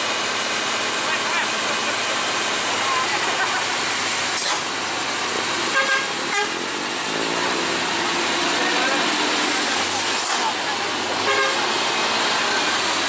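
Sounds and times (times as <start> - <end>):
road traffic roar: 0.0 - 13.0
vehicle horn toots: 5.7 - 6.6, 11.2 - 11.8.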